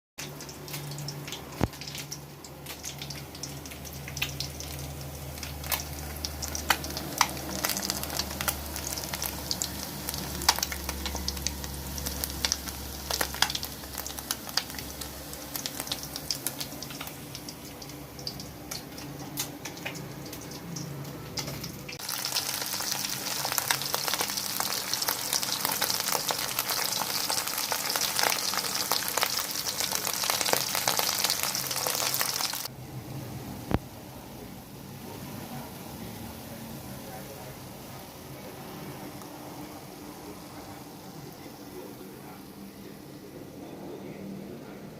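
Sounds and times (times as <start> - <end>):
fish sizzling in hot oil: 0.2 - 20.6, 21.4 - 32.7
oil popping and crackling: 0.2 - 32.7.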